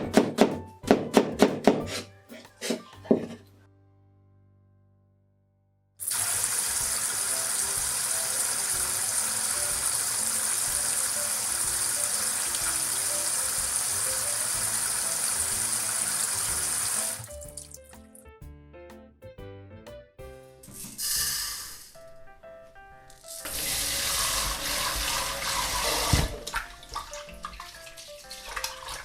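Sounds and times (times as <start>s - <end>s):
background music: 0.0s - 4.5s, 6.0s - 29.0s
tap water running into sink: 6.0s - 17.9s, 23.2s - 29.0s.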